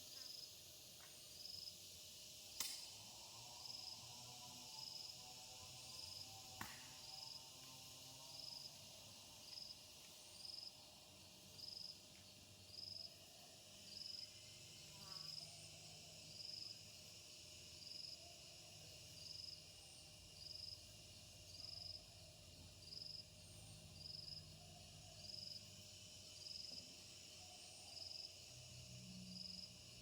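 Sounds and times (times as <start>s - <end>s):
insect chirping: 0.0s - 30.0s
insects hissing: 0.0s - 30.0s.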